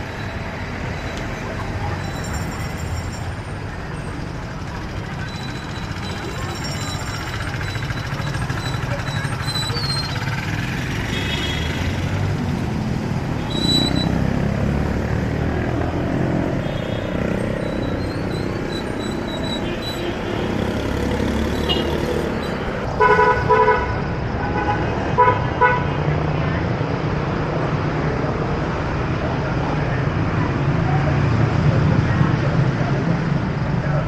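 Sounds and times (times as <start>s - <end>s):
passing traffic: 0.0s - 34.0s
vehicle horn beeps: 11.0s - 11.8s, 16.6s - 20.8s, 21.5s - 25.9s.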